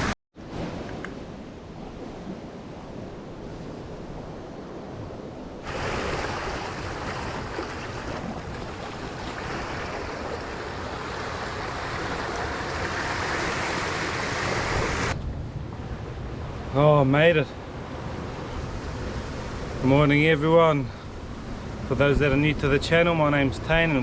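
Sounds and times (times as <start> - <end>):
wind on microphone: 0.0 - 16.8
ocean waves and surf: 0.0 - 22.6.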